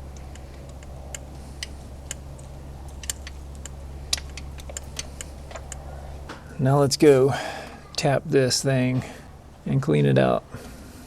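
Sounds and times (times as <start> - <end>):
oil can pump clicks: 0.0 - 5.8
steady low hum: 0.0 - 11.0.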